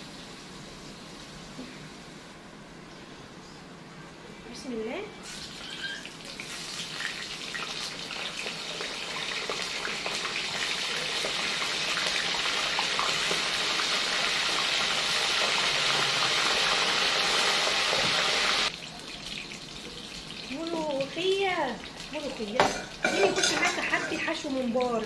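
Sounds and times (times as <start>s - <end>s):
onion sizzling in oil: 5.2s - 25.0s.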